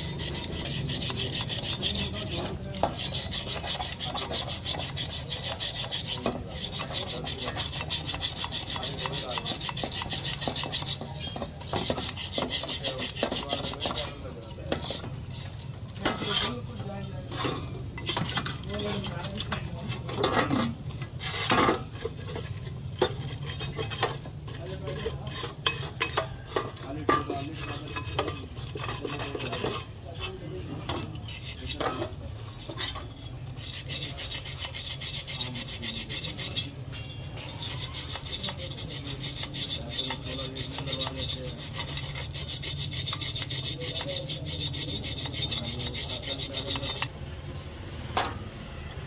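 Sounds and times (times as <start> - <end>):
filing rasping: 0.0 - 15.6, 21.2 - 26.0, 27.4 - 29.8, 32.6 - 36.8, 37.6 - 47.1.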